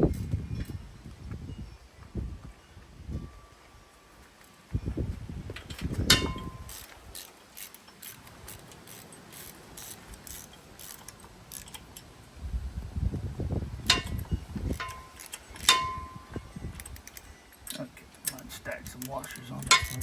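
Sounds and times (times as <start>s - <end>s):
ringing metal clinks: 5.6s - 6.9s, 13.9s - 20.0s
ratchet wrench clicking: 6.0s - 12.1s, 13.9s - 16.0s, 16.8s - 20.0s.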